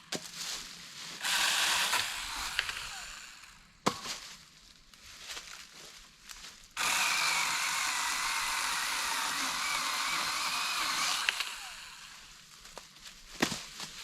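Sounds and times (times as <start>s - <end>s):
power saw cutting wood: 1.2s - 3.5s, 6.8s - 12.3s.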